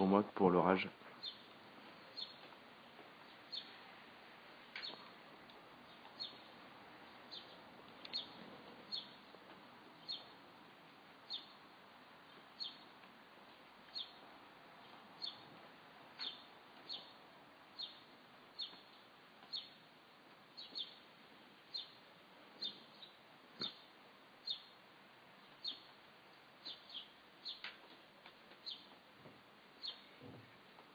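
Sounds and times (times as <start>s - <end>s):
outdoor background hiss: 0.0s - 30.9s
bird chirping: 1.2s - 3.8s, 4.7s - 5.2s, 5.8s - 9.4s, 10.0s - 10.4s, 11.2s - 11.6s, 12.2s - 15.5s, 16.2s - 19.8s, 20.6s - 21.1s, 21.7s - 22.0s, 22.6s - 24.8s, 25.4s - 26.0s, 26.6s - 27.9s, 28.6s - 29.0s, 29.8s - 30.2s.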